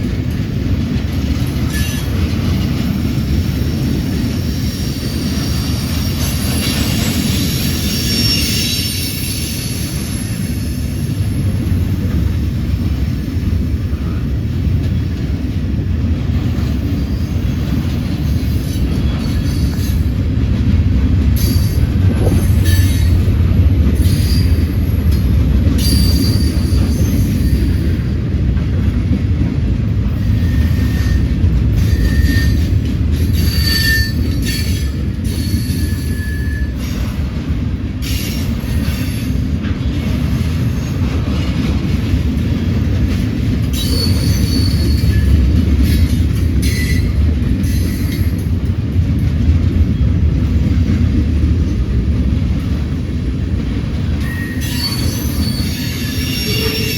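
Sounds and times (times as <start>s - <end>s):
freight train rumble: 0.0s - 56.9s
wheel squeals: 5.0s - 10.4s, 25.8s - 27.9s, 30.2s - 37.0s, 43.7s - 48.4s, 54.2s - 56.9s.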